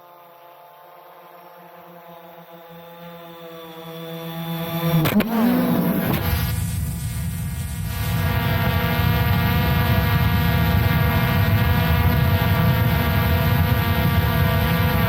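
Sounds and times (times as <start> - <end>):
drone propellers humming: 1.0 - 15.0.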